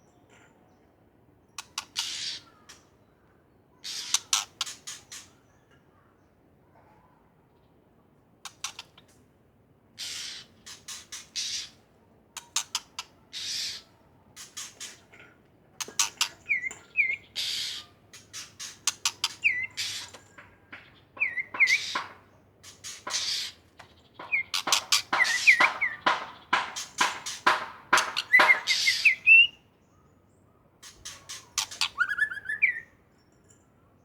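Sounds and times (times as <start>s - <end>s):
bird singing varied song: 15.8s - 34.0s.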